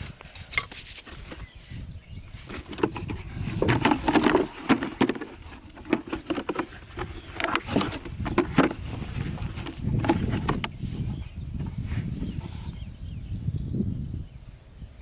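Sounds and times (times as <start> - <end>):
taps knocks and scrapes: 2.5 - 10.8.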